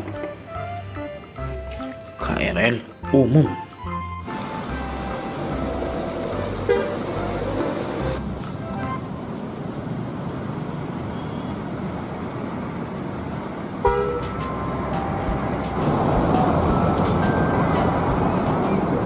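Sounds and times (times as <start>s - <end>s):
rumble of vehicle noise: 3.8s - 19.0s
vehicle horn toots: 6.6s - 7.2s, 13.8s - 14.3s.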